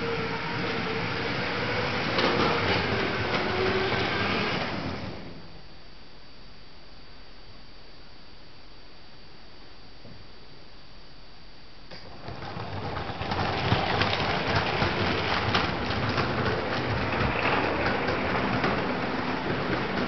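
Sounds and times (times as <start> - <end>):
toy train rattling on plastic track: 12.2 - 20.0.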